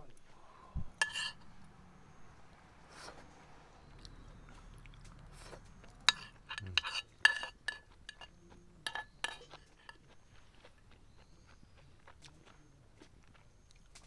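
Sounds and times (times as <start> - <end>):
utensils and cookware clinking: 1.0 - 1.6, 6.0 - 10.0.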